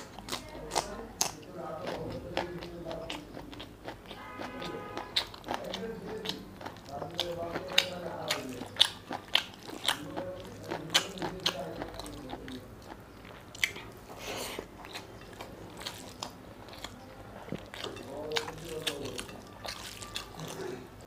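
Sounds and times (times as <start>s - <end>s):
wet chewing and lip-smacking: 0.0s - 20.8s.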